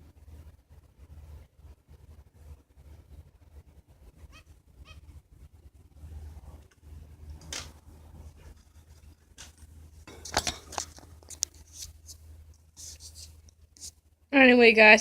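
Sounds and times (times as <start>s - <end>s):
faint low hum: 0.0s - 15.0s
birds pecking and scratching cage: 6.3s - 13.9s.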